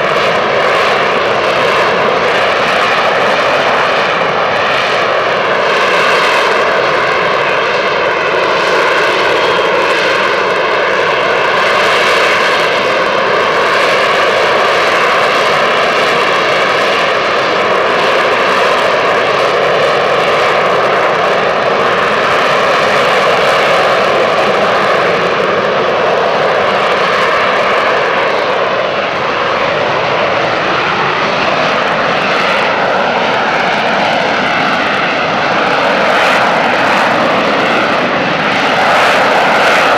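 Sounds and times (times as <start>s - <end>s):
jet engine roaring: 0.0s - 39.9s.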